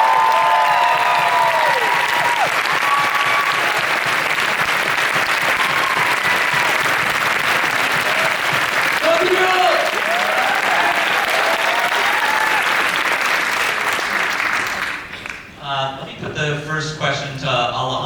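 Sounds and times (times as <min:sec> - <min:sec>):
crowd clapping: 0:00.0 - 0:15.5.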